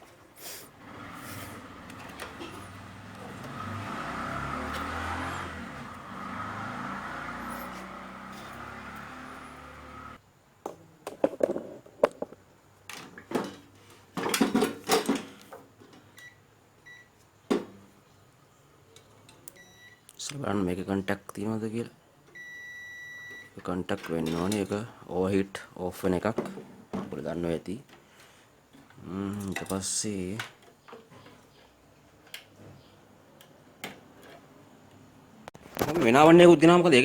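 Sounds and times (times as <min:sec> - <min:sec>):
clicks and knocks from handling: 0:10.6 - 0:13.6.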